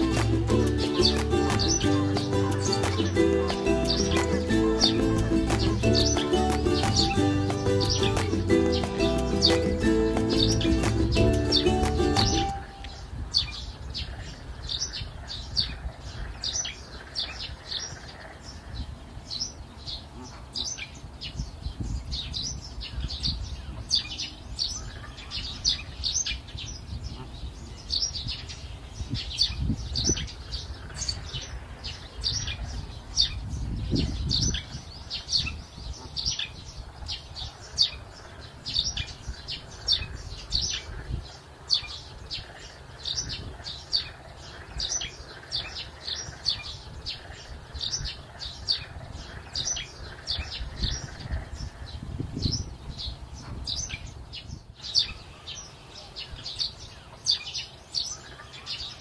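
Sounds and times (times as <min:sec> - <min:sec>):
small birds chirping: 0:00.0 - 0:59.0
low rumbles on microphone: 0:32.4 - 0:36.2, 0:50.4 - 0:54.7.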